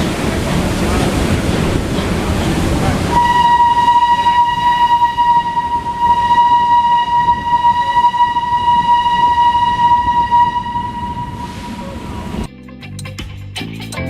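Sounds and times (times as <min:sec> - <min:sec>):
locomotive whistle: 0:03.1 - 0:12.5
rushing hiss: 0:10.9 - 0:12.5.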